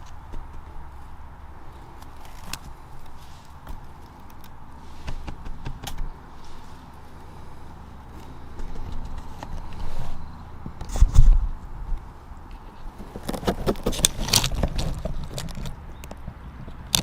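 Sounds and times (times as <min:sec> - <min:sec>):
twigs snapping: 0:01.7 - 0:09.8, 0:12.4 - 0:17.0
low microphone rumble: 0:04.6 - 0:13.0.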